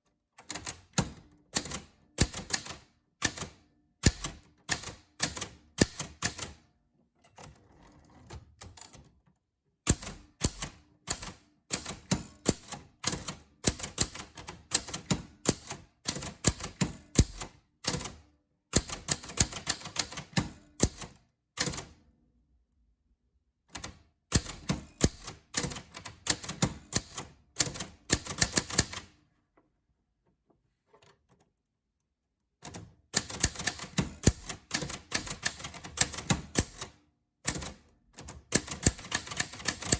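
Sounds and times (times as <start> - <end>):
typewriter keys clacking: 0.4 - 6.6, 9.9 - 18.2, 18.8 - 21.9, 23.8 - 29.1, 32.6 - 36.9, 37.5 - 39.9.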